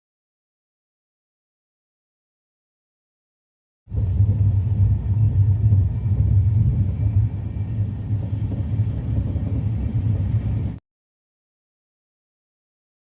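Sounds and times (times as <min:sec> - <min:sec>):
passenger train rumbling: 0:03.9 - 0:10.8.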